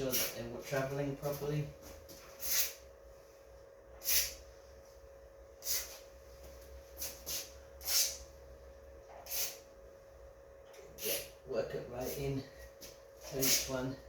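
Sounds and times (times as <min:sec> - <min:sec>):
aerosol can spraying: 0:02.4 - 0:02.8, 0:04.0 - 0:04.4, 0:05.6 - 0:06.0, 0:07.0 - 0:08.2, 0:09.2 - 0:09.6.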